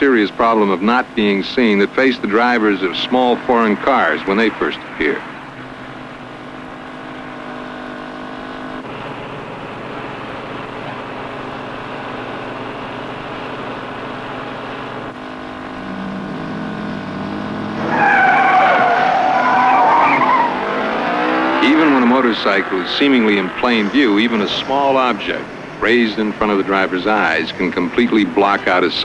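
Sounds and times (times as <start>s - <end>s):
vehicle engine running: 0.0s - 29.0s
tyres squealing: 17.8s - 27.7s.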